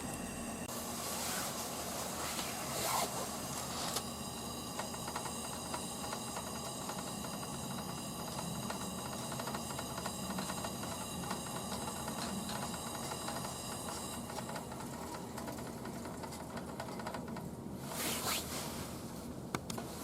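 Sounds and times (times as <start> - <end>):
pressure lantern hissing: 0.0 - 15.9.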